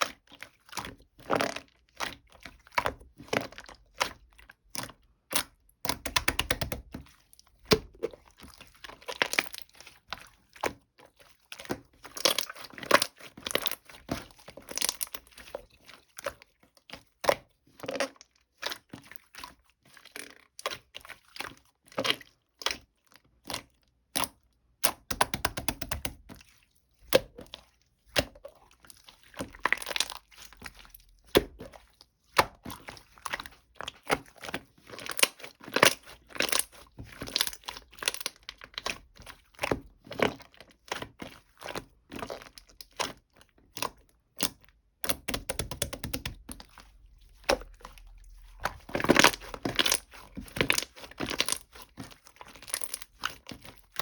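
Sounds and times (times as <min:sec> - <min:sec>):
sharp clicks and taps: 0:45.1 - 0:46.4
crinkling and tearing: 0:46.4 - 0:54.0.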